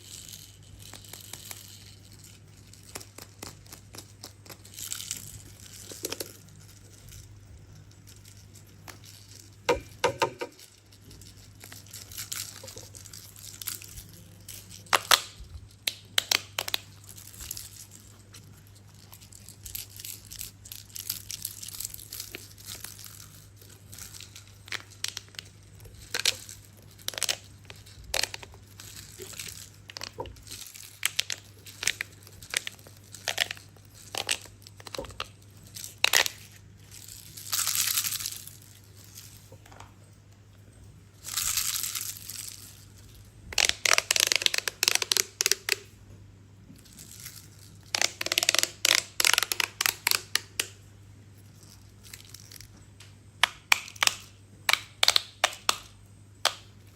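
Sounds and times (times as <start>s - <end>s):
toys clicking and knocking: 9.7s - 10.9s.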